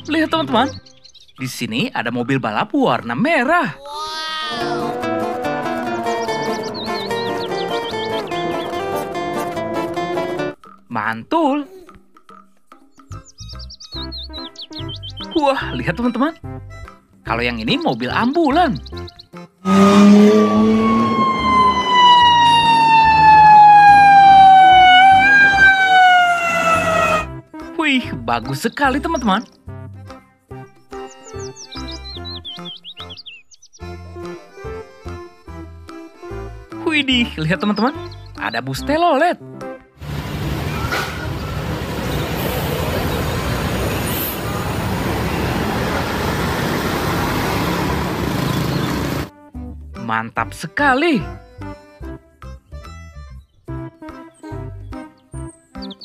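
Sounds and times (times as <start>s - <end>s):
toy ambulance siren: 4.7s - 8.2s, 19.7s - 27.3s
road traffic rumble and hiss: 40.0s - 49.3s.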